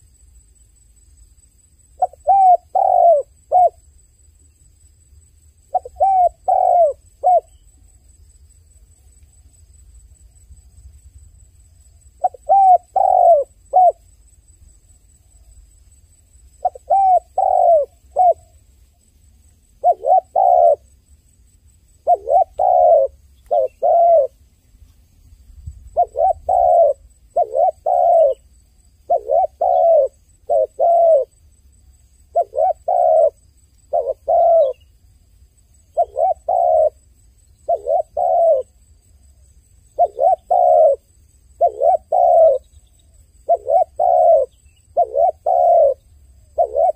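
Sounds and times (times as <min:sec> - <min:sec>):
dove cooing: 0:02.0 - 0:03.8, 0:05.7 - 0:07.7, 0:12.2 - 0:14.0, 0:16.6 - 0:18.6, 0:19.8 - 0:20.9, 0:22.0 - 0:24.4, 0:25.9 - 0:31.4, 0:32.3 - 0:34.9, 0:35.9 - 0:37.0, 0:37.6 - 0:38.8, 0:40.0 - 0:46.9.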